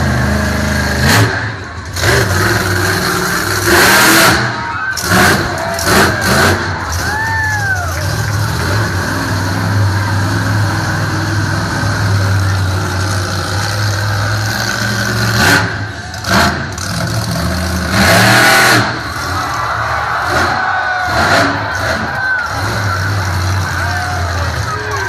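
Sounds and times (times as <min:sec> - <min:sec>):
monster truck engine revving: 0:00.0 - 0:25.0.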